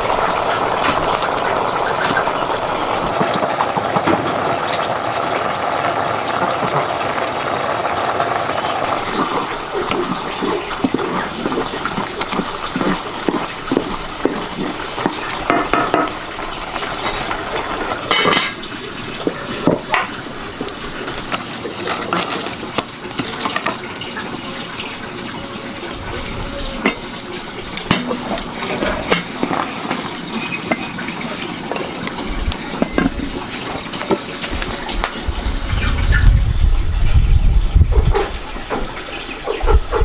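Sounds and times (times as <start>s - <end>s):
water splashing and pouring: 0.0s - 40.0s
dishes clinking: 12.8s - 16.2s, 16.9s - 20.3s, 26.7s - 35.1s.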